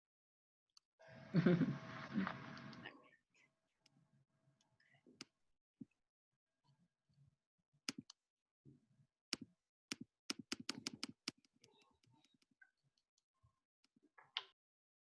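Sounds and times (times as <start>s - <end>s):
computer keys clicking: 9.9s - 12.5s.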